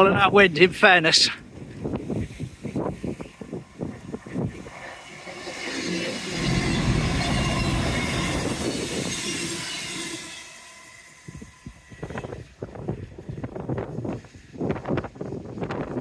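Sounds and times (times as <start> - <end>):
train rumble and rail noise: 2.0 - 13.4.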